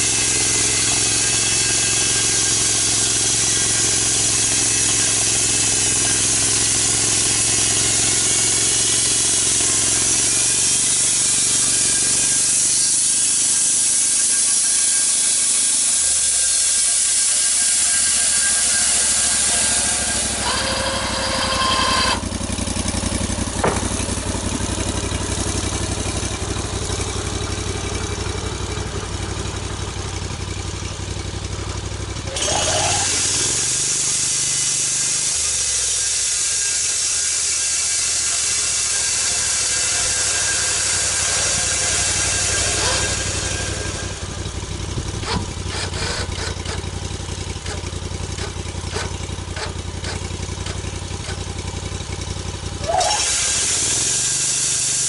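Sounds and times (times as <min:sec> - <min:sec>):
loud hiss of blade cutting: 0:00.0 - 0:22.6, 0:32.4 - 0:47.0, 0:52.8 - 0:55.0
sawmill engine running: 0:00.0 - 0:55.0.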